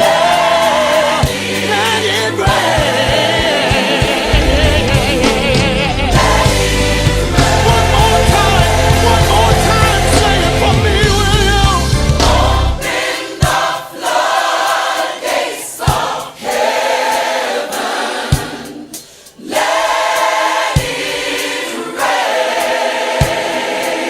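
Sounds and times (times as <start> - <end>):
band accompaniment: 0.0 - 24.0
gospel choir singing: 0.0 - 24.0
sharp beat: 3.1 - 12.6.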